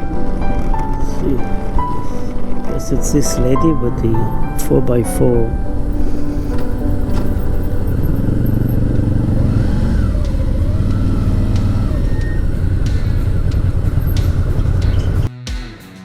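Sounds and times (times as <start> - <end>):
motorcycle engine running: 5.4 - 15.3.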